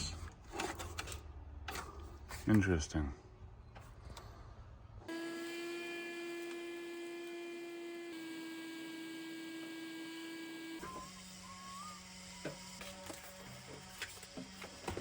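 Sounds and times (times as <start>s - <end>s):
power tool motor whining: 5.1s - 15.0s.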